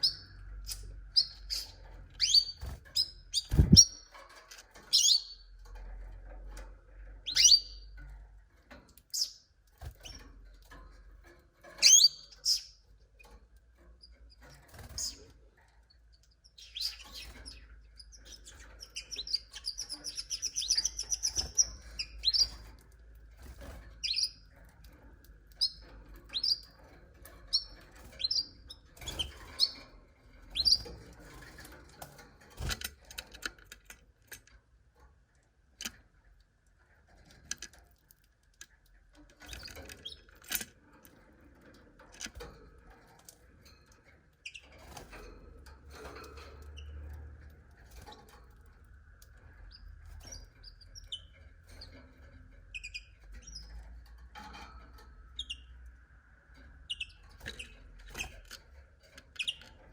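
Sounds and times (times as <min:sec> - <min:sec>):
canary singing: 0:00.0 - 0:04.2, 0:04.8 - 0:05.6, 0:07.0 - 0:08.1, 0:09.0 - 0:10.2, 0:11.7 - 0:13.3, 0:16.1 - 0:22.9, 0:24.0 - 0:24.5, 0:25.5 - 0:26.8, 0:27.4 - 0:31.7, 0:49.4 - 0:52.0, 0:52.6 - 0:53.9, 0:55.3 - 0:58.6, 0:59.2 - 0:59.9.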